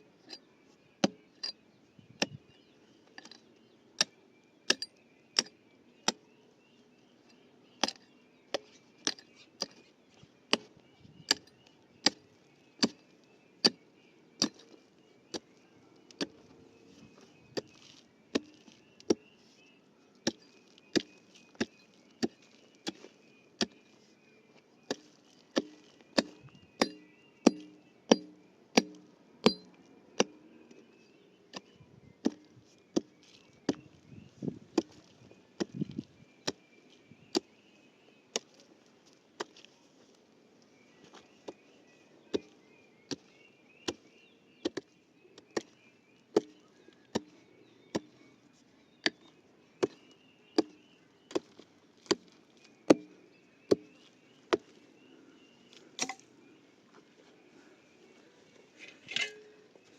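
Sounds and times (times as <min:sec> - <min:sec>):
hand tool chopping: 0:07.8 - 0:08.0, 0:10.5 - 0:13.8, 0:14.4 - 0:19.3, 0:20.2 - 0:23.9, 0:24.9 - 0:30.4, 0:31.6 - 0:34.0, 0:34.7 - 0:36.6, 0:44.6 - 0:47.3, 0:49.0 - 0:53.1, 0:56.0 - 0:56.2.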